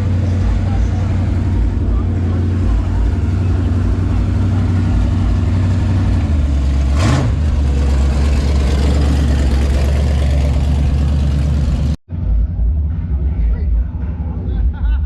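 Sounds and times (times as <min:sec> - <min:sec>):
car engine idling: 0:00.0 - 0:14.4.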